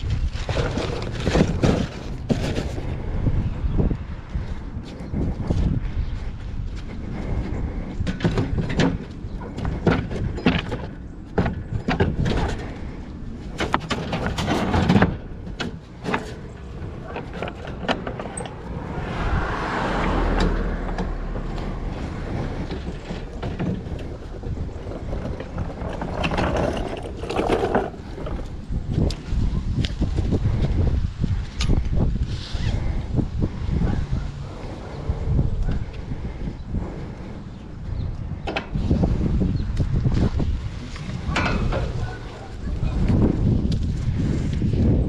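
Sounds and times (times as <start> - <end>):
items rummaged in a dumpster: 0.0 - 2.8, 13.5 - 18.6, 21.4 - 29.0
rushing noise: 18.4 - 23.4.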